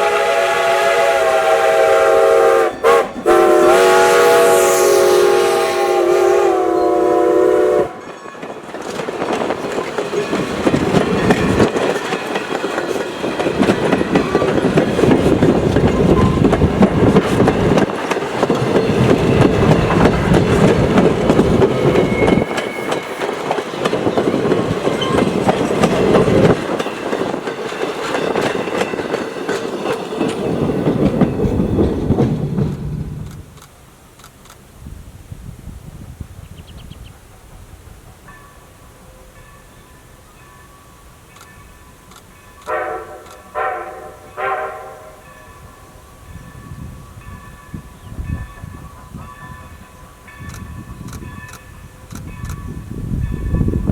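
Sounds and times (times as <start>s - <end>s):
train wheels clicking over rail joints: 8.0s - 34.6s, 46.4s - 53.9s.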